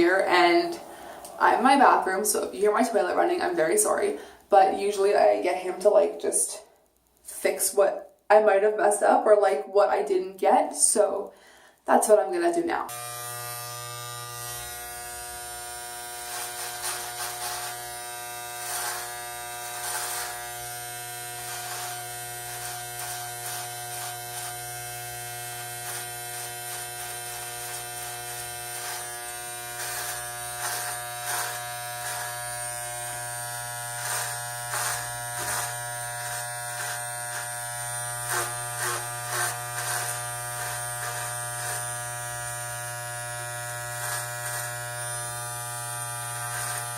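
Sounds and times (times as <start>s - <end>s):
clippers crackling through hair: 12.9s - 46.9s
electric hair clippers buzzing: 12.9s - 46.9s.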